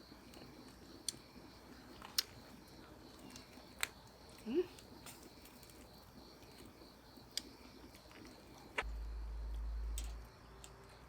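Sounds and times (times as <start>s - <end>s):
crickets chirping: 0.0s - 11.0s
low rumble: 8.8s - 10.4s.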